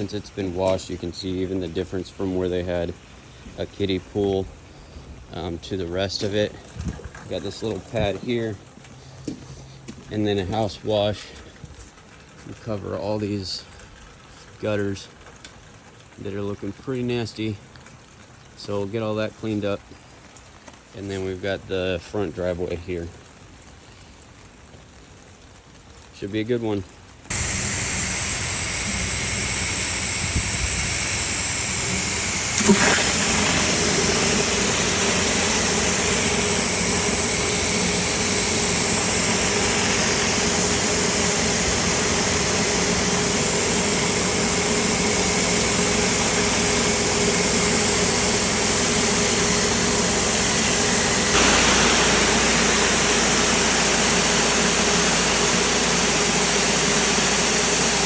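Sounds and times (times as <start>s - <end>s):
pressure washer spraying concrete: 27.3s - 58.0s.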